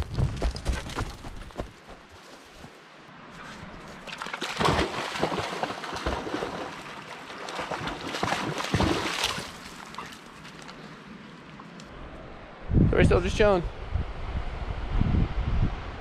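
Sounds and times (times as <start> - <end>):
dog splashing through water: 3.9 - 10.7.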